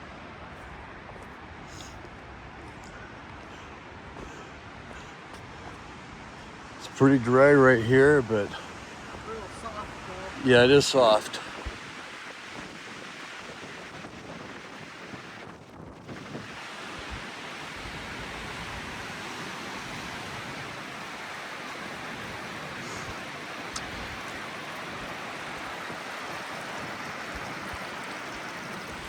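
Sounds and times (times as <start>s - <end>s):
runoff water rushing: 0.0s - 29.0s
wind buffeting microphone: 8.0s - 29.0s.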